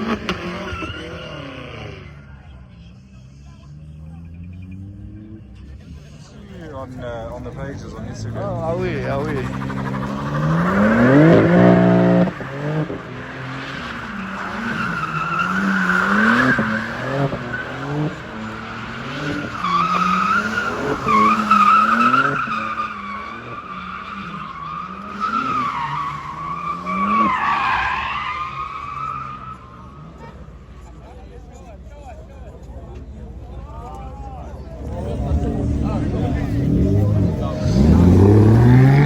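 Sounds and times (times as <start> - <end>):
car engine revving: 0.0 - 31.0, 34.5 - 39.0
tyres screeching: 34.8 - 39.0.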